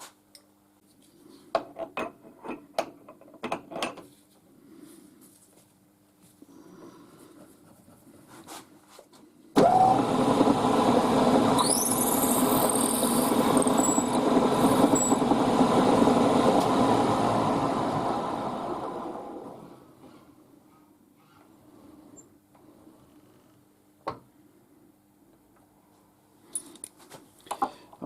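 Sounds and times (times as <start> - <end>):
milling machine motor running: 9.6 - 19.7
high squealing whine: 11.5 - 15.5
faint clicks of parts handled: 26.5 - 27.7.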